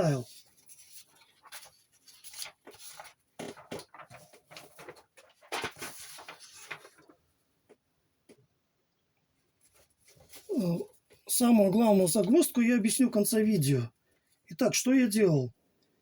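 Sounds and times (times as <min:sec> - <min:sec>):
scratching and rubbing: 0:00.0 - 0:07.2.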